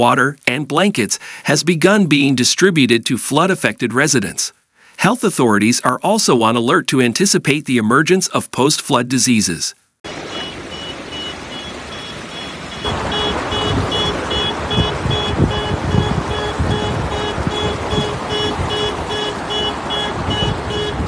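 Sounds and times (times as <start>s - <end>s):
loud rushing noise with rumbles: 10.1s - 21.0s.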